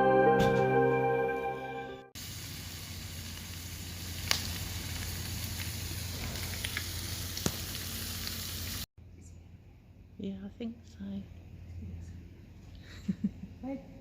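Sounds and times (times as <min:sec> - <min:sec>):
food frying sizzle: 0:02.2 - 0:08.9
sharp pops from frying: 0:02.2 - 0:08.9.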